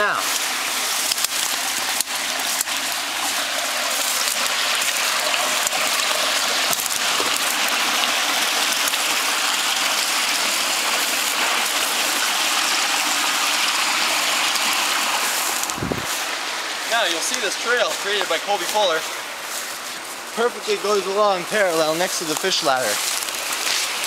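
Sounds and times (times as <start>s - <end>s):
water rushing down a fish ladder: 0.0s - 24.0s.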